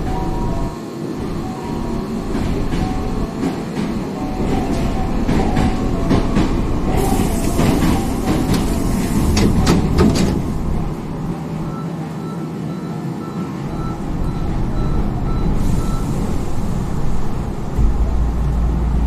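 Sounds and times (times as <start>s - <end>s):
wheels clacking over rail joints: 0.0s - 11.7s
electric train rumbling: 0.0s - 19.0s
hiss: 6.9s - 10.4s.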